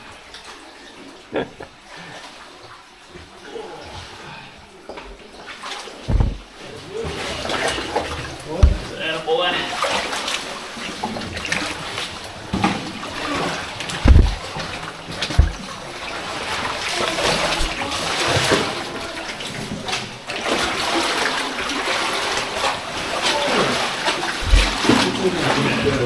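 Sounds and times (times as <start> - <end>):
water splashing and sloshing: 0.0 - 26.0
dull thumps: 6.1 - 6.5, 8.6 - 9.0, 14.0 - 15.7.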